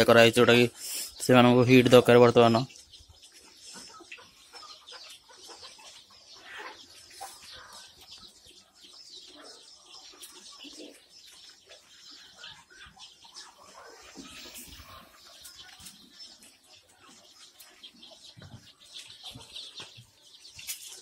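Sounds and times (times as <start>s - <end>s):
chicks peeping: 0.0s - 21.0s.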